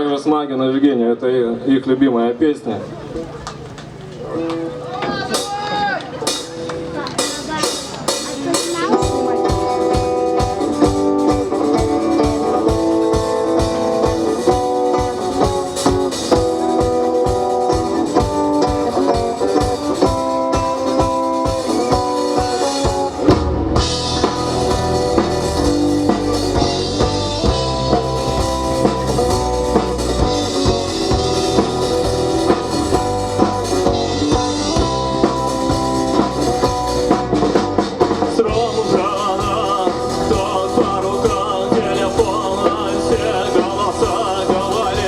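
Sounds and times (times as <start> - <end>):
electric guitar: 2.8 - 45.0
drum kit: 3.3 - 45.0
heavy low bass: 23.2 - 45.0.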